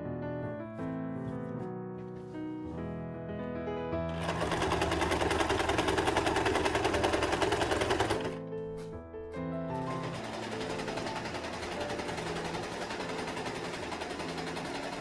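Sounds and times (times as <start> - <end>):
soft piano music: 0.0 - 15.0
electric sewing machine stitching: 4.1 - 8.4, 9.8 - 15.0.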